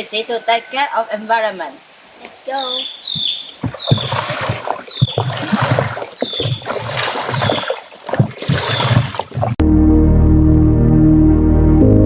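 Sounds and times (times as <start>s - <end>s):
water splashing: 3.1s - 9.6s
organ music: 9.6s - 12.0s.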